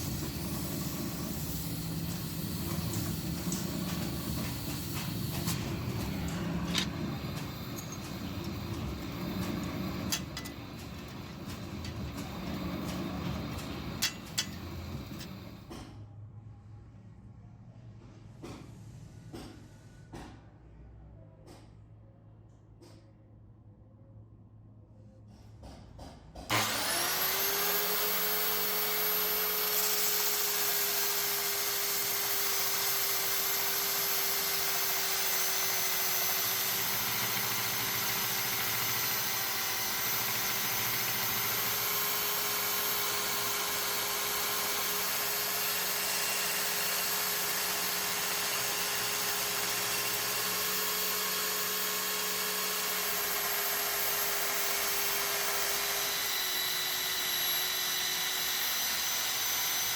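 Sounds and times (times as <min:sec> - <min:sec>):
electric grinder whining: 0:00.0 - 0:15.6, 0:26.5 - 0:59.9
grinding hiss: 0:00.0 - 0:15.6.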